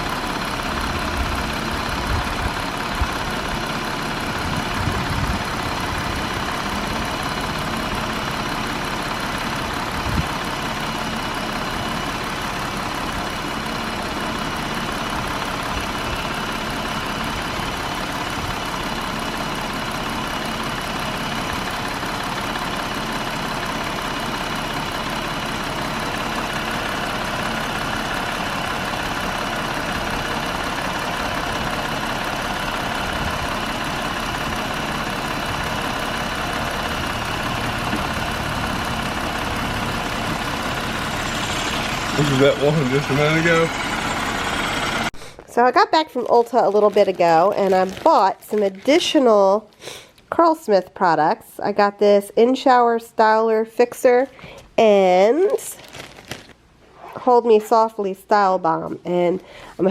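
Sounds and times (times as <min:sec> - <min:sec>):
engine knock: 0:00.0 - 0:45.1
engine idling with rattling drone: 0:00.0 - 0:49.7.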